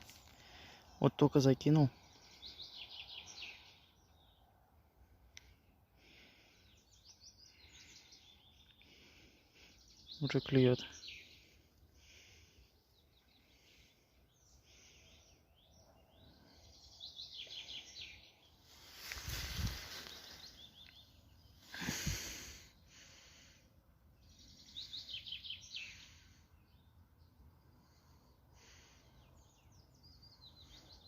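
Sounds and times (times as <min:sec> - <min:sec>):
outdoor background noise: 0:00.0 - 0:31.0
songbirds singing: 0:00.0 - 0:31.0
rustling noise: 0:18.8 - 0:20.5.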